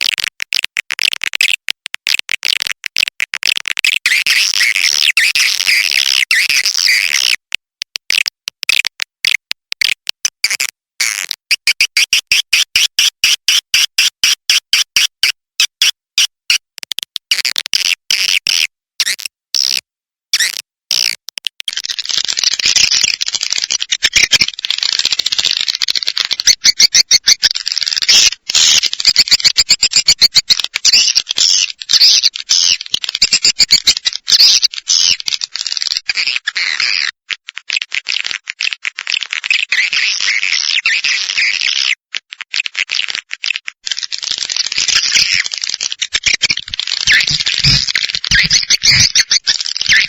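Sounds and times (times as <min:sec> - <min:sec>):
swiftlets chirping and twittering: 0:26.3 - 0:35.2, 0:46.2 - 0:50.0.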